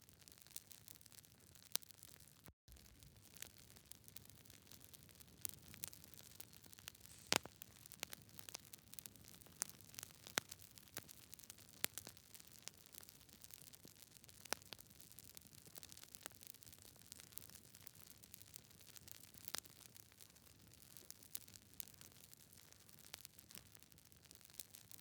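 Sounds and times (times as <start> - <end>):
wood fire crackling: 0.2 - 25.0
faint steady hiss: 2.7 - 9.0.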